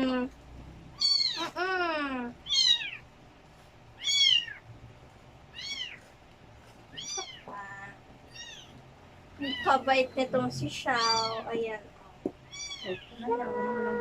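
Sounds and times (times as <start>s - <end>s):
cat meowing: 0.9s - 1.6s, 2.4s - 3.0s, 4.0s - 4.6s, 5.5s - 6.1s, 6.9s - 7.5s, 8.3s - 8.8s, 9.4s - 9.9s, 11.0s - 11.5s, 12.4s - 14.0s.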